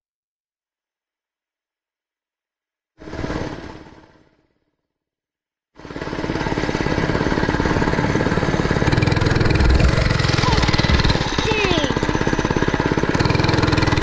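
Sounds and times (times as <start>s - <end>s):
small gasoline engine running: 3.0s - 4.3s, 5.8s - 14.0s.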